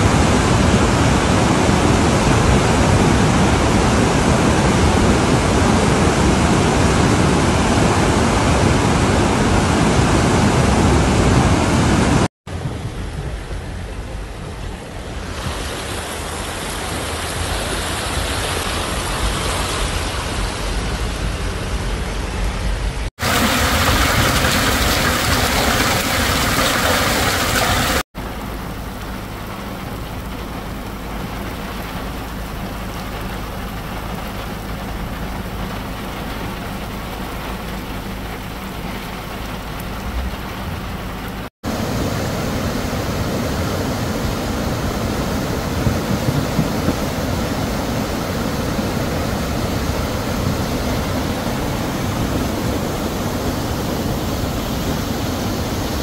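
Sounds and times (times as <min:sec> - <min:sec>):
floodwater rushing and churning: 0:00.0 - 0:56.0
heavy rain pouring: 0:00.0 - 0:56.0
soft steady rain: 0:12.5 - 0:56.0.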